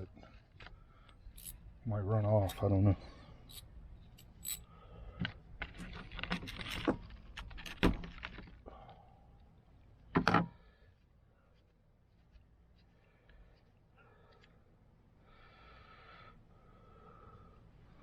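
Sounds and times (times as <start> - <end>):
metal parts clinking: 1.3 - 1.6, 3.4 - 4.7, 5.8 - 8.3.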